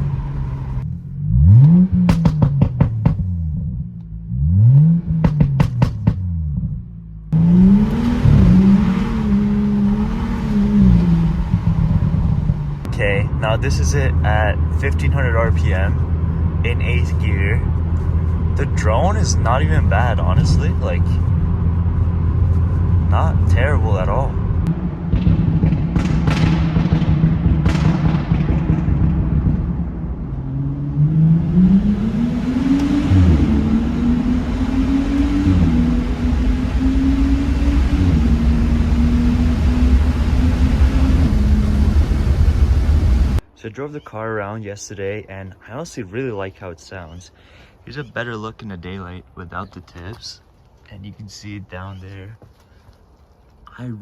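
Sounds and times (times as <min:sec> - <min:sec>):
sharp exhaust pops: 0:00.0 - 0:04.2, 0:04.9 - 0:13.0, 0:16.2 - 0:30.4
deep exhaust drone: 0:00.0 - 0:43.4
road and wind noise: 0:00.0 - 0:44.0, 0:45.7 - 0:54.0
short knocks: 0:02.0 - 0:03.3, 0:05.2 - 0:06.3.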